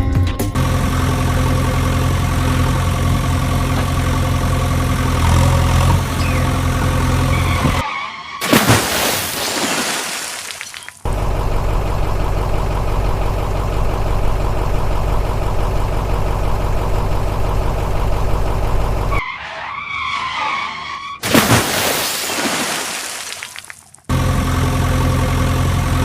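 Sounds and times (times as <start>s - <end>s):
vehicle engine running: 0.4s - 7.8s, 11.0s - 19.2s, 24.1s - 26.0s.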